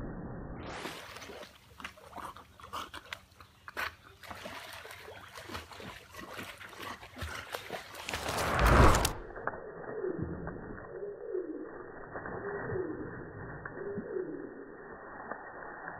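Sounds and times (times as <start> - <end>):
dogs splashing in water: 0.7 - 8.4.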